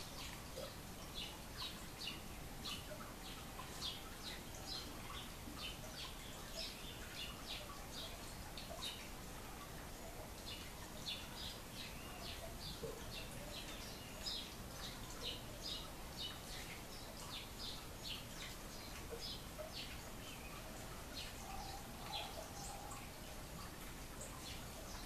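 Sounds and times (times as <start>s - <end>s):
background hiss: 0.0s - 25.0s
birds chirping: 9.7s - 25.0s.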